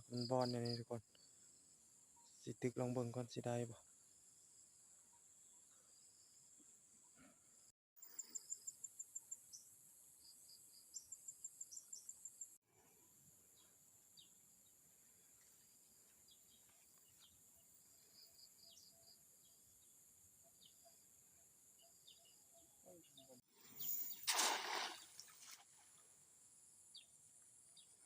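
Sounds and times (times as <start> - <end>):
rapid high insect chirps: 23.6 - 25.6.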